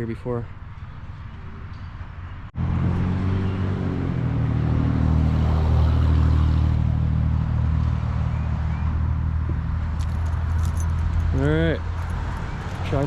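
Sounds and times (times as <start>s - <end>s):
car engine humming: 8.9s - 13.0s.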